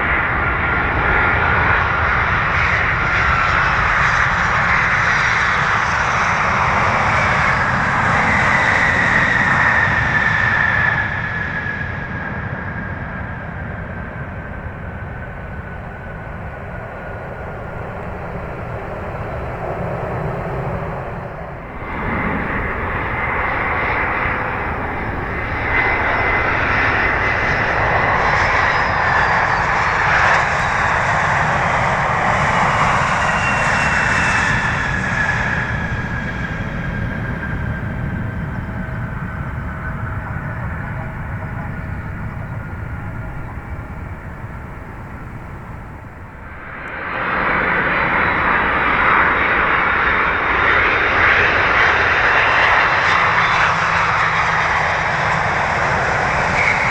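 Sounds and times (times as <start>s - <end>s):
airliner jet noise: 0.0s - 56.9s
jet landing roar and whine: 0.0s - 56.9s.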